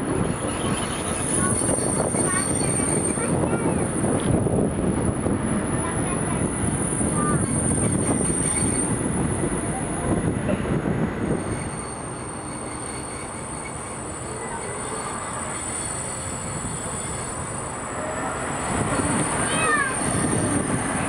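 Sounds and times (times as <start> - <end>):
train wheels rumbling on rails: 0.0 - 21.0
wind: 0.0 - 21.0.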